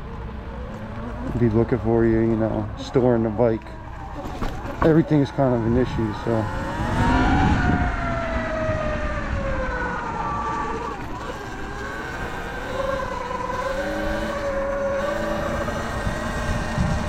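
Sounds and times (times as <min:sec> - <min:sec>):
electric motor whining: 0:00.5 - 0:17.0.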